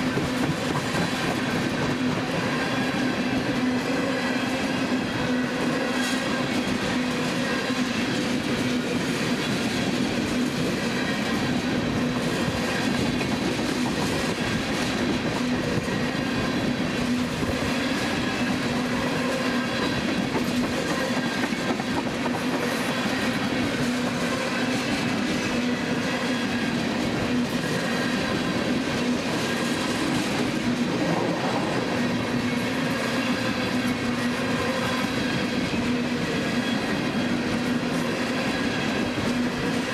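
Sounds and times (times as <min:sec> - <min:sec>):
train wheels clattering: 0:00.0 - 0:03.1.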